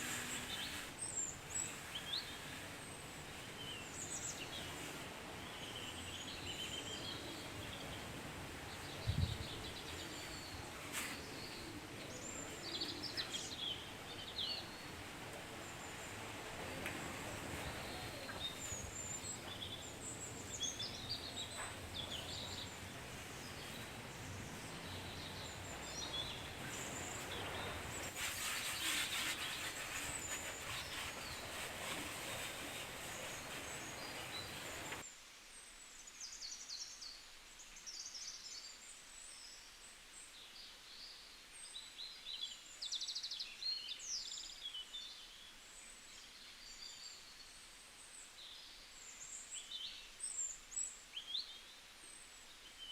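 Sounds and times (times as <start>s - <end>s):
loud hissing: 0.0s - 8.5s, 9.6s - 35.0s
outdoor background rush: 0.0s - 35.0s
small birds chirping: 0.0s - 35.0s.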